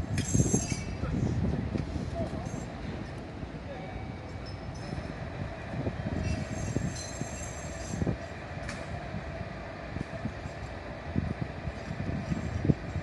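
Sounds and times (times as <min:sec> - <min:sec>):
high-pitched metallic squeal: 0:00.2 - 0:01.0, 0:06.1 - 0:08.1.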